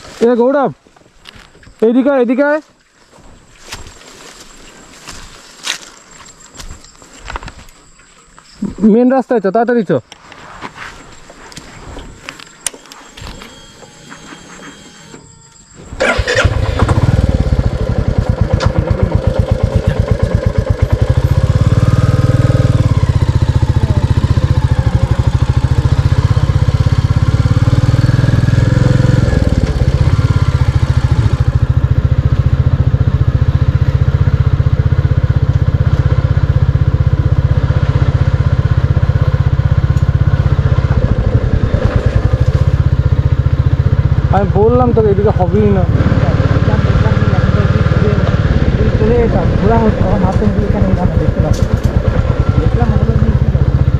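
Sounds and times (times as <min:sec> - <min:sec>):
motorcycle engine thumping: 0:16.0 - 0:53.9.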